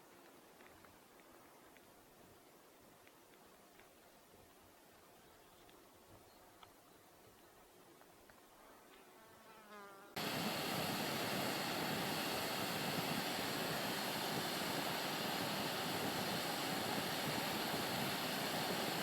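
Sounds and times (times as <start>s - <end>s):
steady rushing noise: 10.2s - 19.0s.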